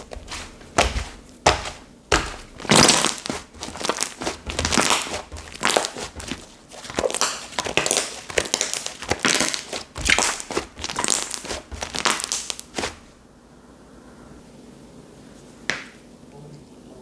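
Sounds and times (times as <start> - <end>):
hands squishing slime: 0.0 - 13.2.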